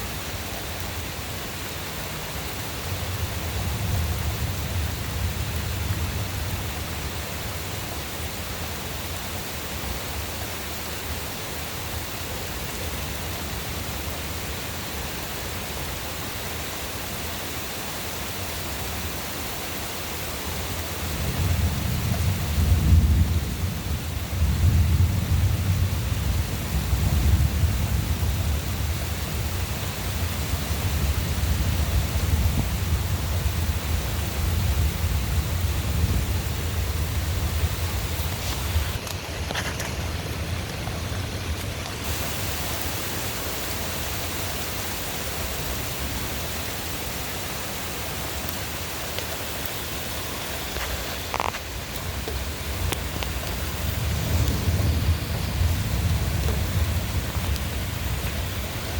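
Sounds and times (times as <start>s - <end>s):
rain hissing: 0.0s - 58.9s
thunder rumbling: 21.0s - 47.4s, 50.1s - 58.9s.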